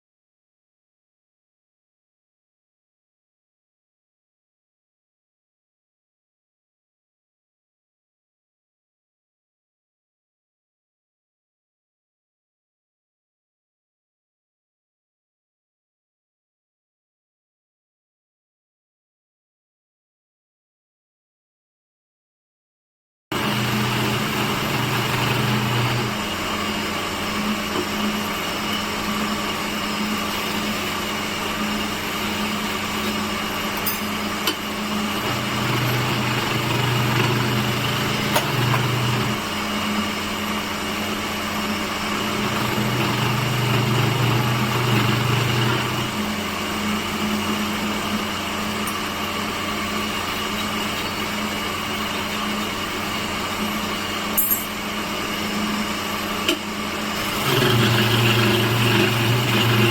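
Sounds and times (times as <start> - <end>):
woodworking machine humming: 23.3 - 59.9.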